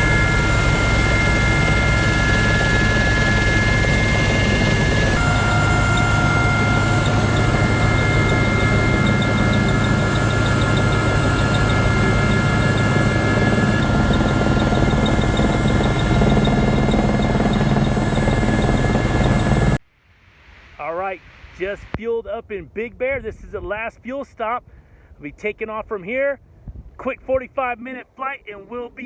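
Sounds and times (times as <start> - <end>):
helicopter rotor rumble: 0.0 - 19.8
helicopter turbine whine: 0.0 - 19.8.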